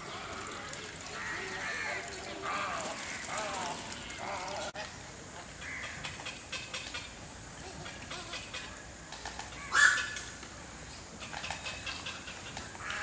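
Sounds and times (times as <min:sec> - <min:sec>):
loud bird squawk: 0:09.7 - 0:10.2.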